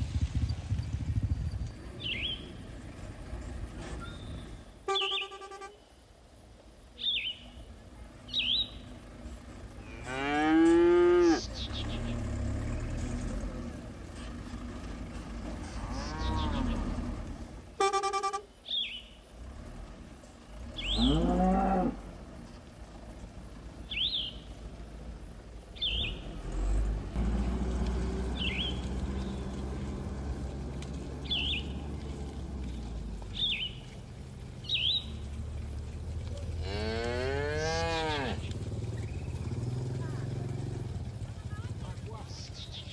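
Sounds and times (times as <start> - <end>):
bird chirps: 1.2 - 3.0, 3.6 - 6.0, 6.9 - 9.0, 11.3 - 12.3, 18.6 - 19.2, 20.7 - 21.2, 23.8 - 24.6, 25.7 - 26.4, 28.2 - 36.5, 38.4 - 40.3, 41.5 - 42.9
cattle mooing: 9.8 - 11.5, 15.6 - 17.1, 20.9 - 22.1, 36.4 - 38.5.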